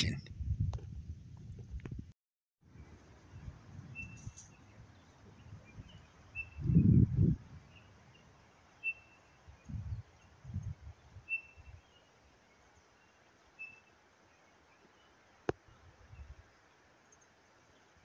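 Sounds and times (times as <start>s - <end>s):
wind rumble on microphone: 0.0s - 8.4s, 9.4s - 11.9s, 15.7s - 16.4s
high bird chirps: 5.4s - 7.0s.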